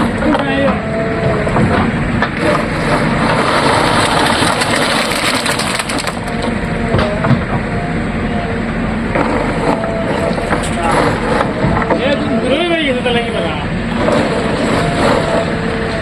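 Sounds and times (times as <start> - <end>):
diesel engine running: 0.0 - 16.0
earth and stones pouring: 3.4 - 6.3.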